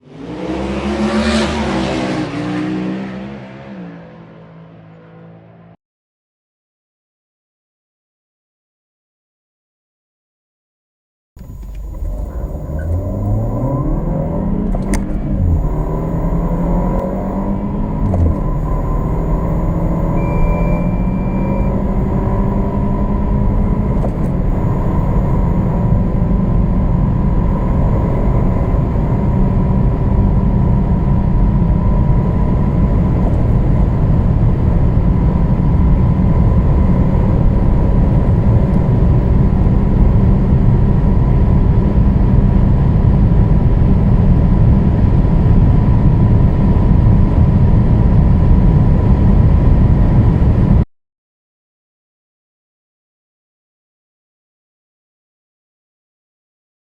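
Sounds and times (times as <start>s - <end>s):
road and wind rumble: 0.0s - 5.7s, 11.4s - 50.9s
car engine accelerating: 0.0s - 5.8s, 11.4s - 50.8s.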